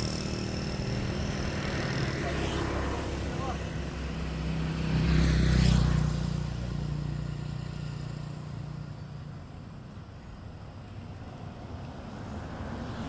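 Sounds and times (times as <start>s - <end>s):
vehicle engine passing by: 0.0s - 8.7s.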